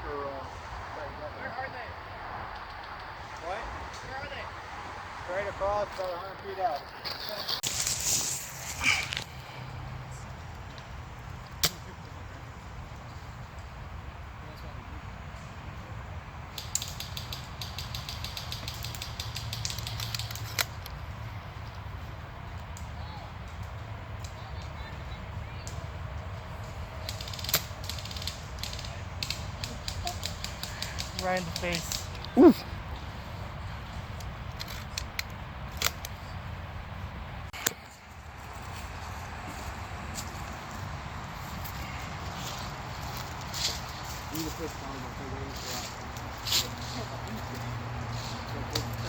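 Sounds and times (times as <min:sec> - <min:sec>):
sharp clicks: 0:16.6 - 0:20.9.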